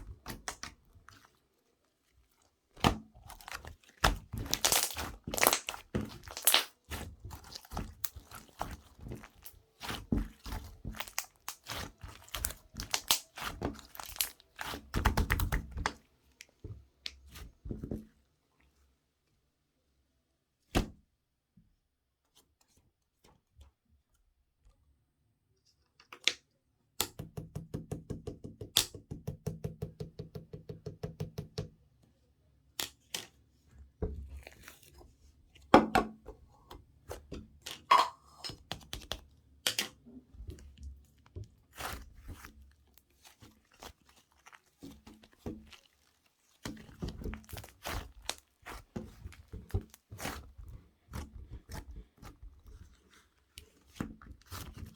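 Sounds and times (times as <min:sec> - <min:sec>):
slime clicking and popping: 0:04.4 - 0:07.0, 0:10.9 - 0:15.9.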